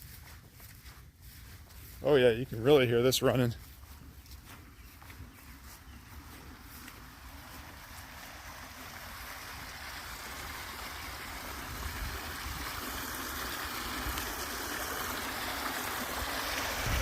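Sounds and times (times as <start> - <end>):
water rushing through overflow: 6.8 - 17.0.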